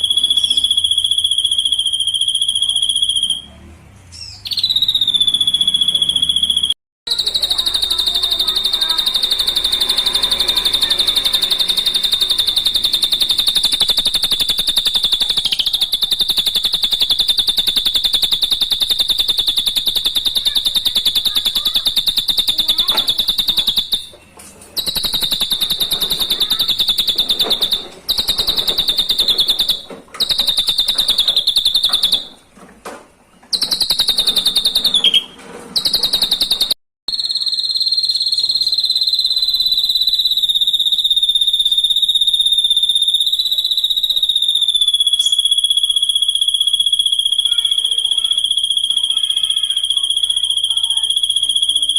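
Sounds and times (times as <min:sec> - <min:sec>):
bird high-pitched trill: 0:00.0 - 0:32.4, 0:33.5 - 0:51.9.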